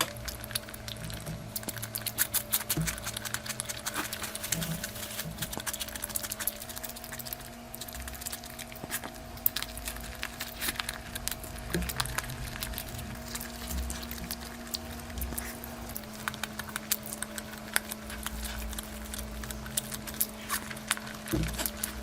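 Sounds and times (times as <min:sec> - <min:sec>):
chewing and mouth clicks: 0:00.0 - 0:22.0
faint steady hum: 0:00.0 - 0:22.0.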